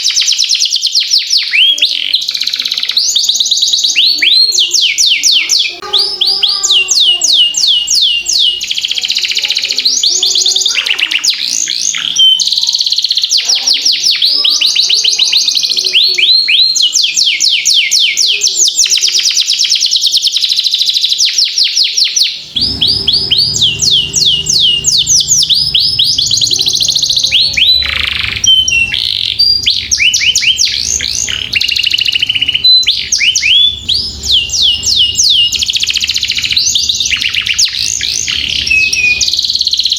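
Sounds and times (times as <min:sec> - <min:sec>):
canary singing trills: 0:00.0 - 0:39.9
low steady hum: 0:22.4 - 0:39.6.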